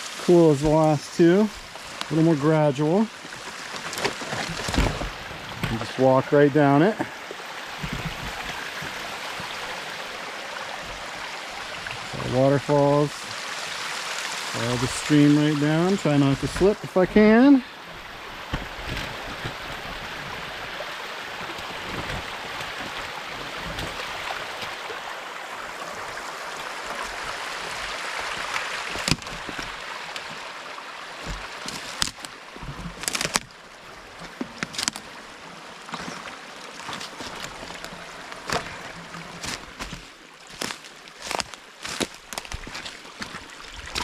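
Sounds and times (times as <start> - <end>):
creek water rushing: 0.0 - 44.0
footsteps on rocks: 0.4 - 2.3, 3.1 - 6.0, 7.6 - 10.0, 14.6 - 24.9, 26.0 - 30.5, 31.1 - 44.0.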